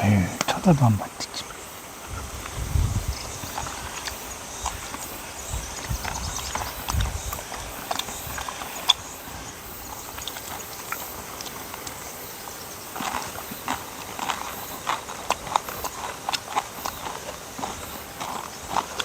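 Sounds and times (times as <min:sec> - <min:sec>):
dog chewing and eating: 0:03.3 - 0:19.0.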